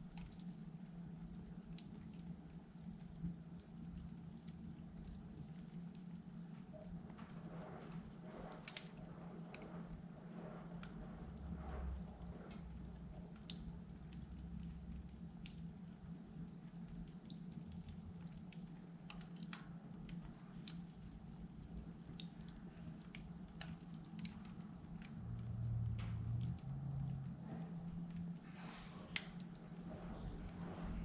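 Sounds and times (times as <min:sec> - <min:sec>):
log fire crackling: 0:00.0 - 0:31.0
low hum: 0:24.3 - 0:31.0.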